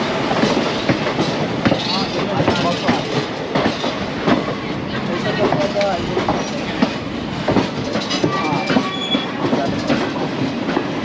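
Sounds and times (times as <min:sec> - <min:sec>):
train wheels rumbling on rails: 0:00.0 - 0:11.0
high wheel squeals: 0:08.2 - 0:09.4.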